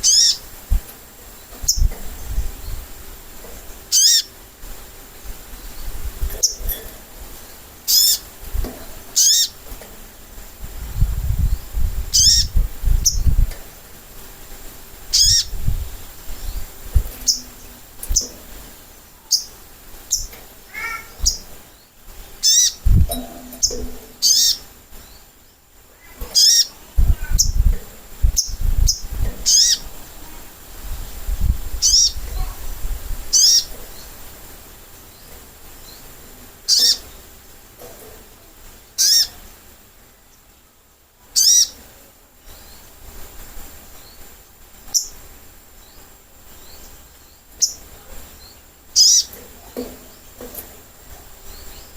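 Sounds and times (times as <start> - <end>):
bird high-pitched chirps: 0.0 - 0.4, 1.6 - 2.4, 3.9 - 4.3, 7.9 - 8.2, 9.2 - 9.6, 12.1 - 13.4, 15.1 - 15.6, 16.4 - 18.6, 19.2 - 21.6, 22.4 - 24.6, 26.3 - 27.7, 31.8 - 32.6, 36.7 - 37.1, 49.0 - 49.4
low thumps: 22.8 - 24.2.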